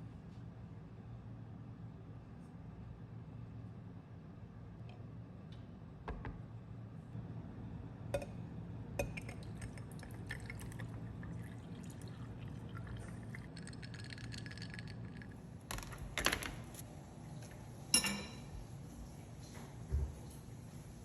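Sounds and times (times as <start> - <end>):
liquid pouring: 9.0 - 15.4.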